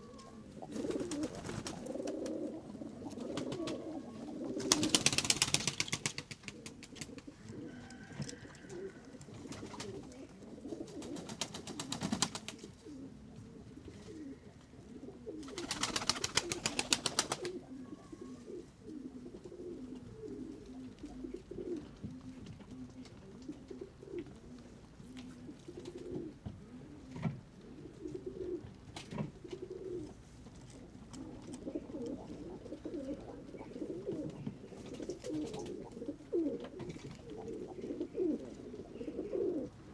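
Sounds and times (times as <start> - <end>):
pigeons cooing: 0.0 - 39.9
wings flapping: 0.6 - 2.4, 3.2 - 3.9, 4.5 - 7.3, 10.9 - 12.6, 15.4 - 17.6.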